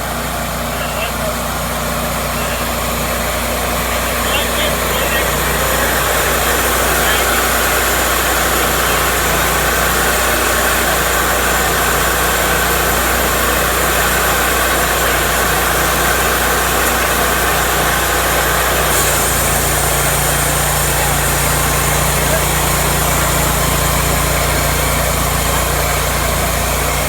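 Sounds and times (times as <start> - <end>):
sawmill engine running: 0.0 - 27.0.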